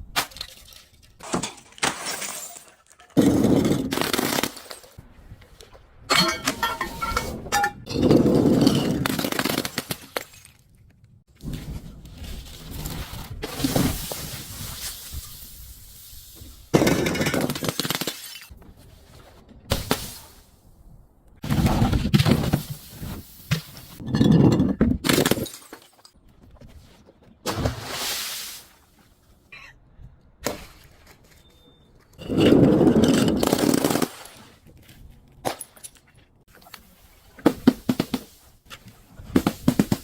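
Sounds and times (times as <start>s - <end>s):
glass bottles breaking and crushing: 0.2s - 5.0s, 6.1s - 10.6s, 16.8s - 18.5s, 24.0s - 26.0s.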